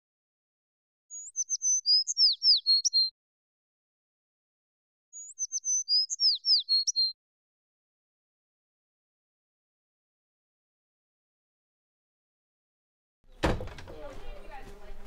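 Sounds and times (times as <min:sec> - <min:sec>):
songbird song: 0:01.1 - 0:03.2, 0:05.1 - 0:07.2, 0:13.2 - 0:15.0.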